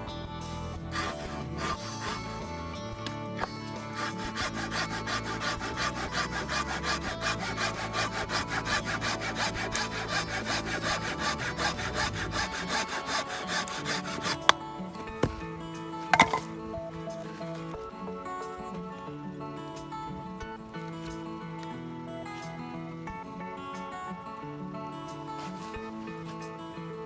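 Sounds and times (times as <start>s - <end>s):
saw cutting firewood: 0.5s - 17.8s, 25.3s - 26.7s.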